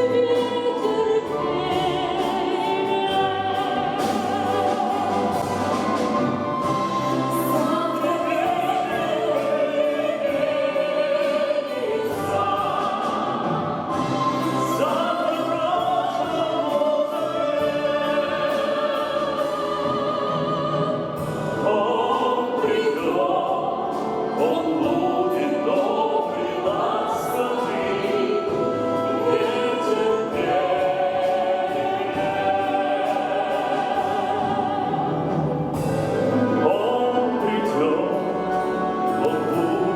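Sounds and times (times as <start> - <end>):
instrumental accompaniment: 0.0 - 39.9
people singing in harmony: 0.0 - 39.9.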